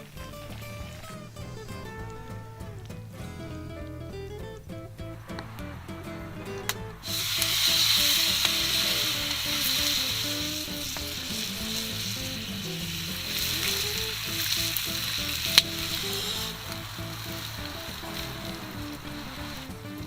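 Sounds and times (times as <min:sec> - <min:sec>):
quiet guitar music: 0:00.0 - 0:20.0
food sizzling in frying pan: 0:05.3 - 0:20.0.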